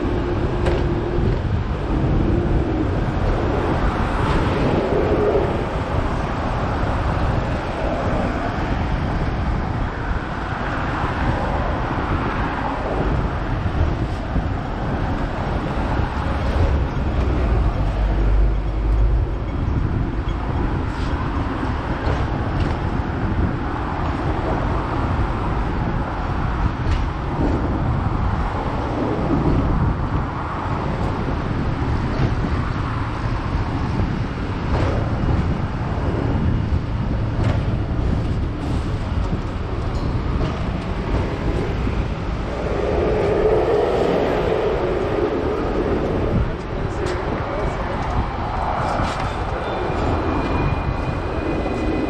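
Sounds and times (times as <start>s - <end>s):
tram wheels rumbling on rails: 0.0s - 52.0s.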